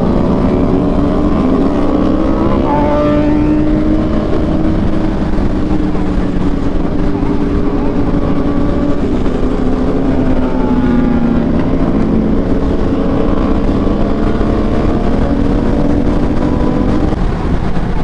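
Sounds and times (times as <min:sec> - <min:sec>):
motorcycle engine running: 0:00.0 - 0:18.0
wind rush: 0:00.0 - 0:18.0.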